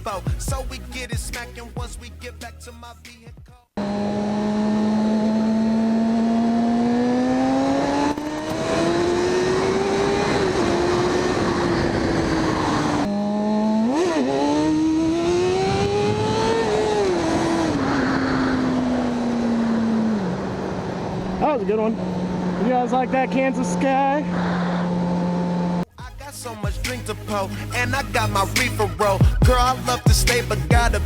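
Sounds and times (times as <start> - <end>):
motorcycle engine accelerating: 3.8 - 25.9.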